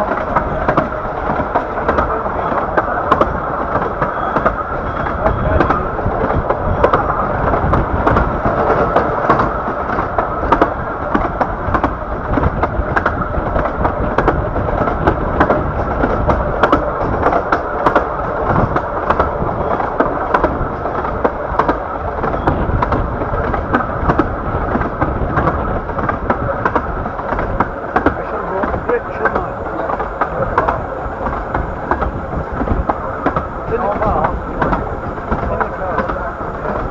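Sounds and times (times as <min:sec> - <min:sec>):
railway carriage rolling rumble: 0:00.0 - 0:36.9
wheels clicking over rail joints: 0:00.0 - 0:36.9.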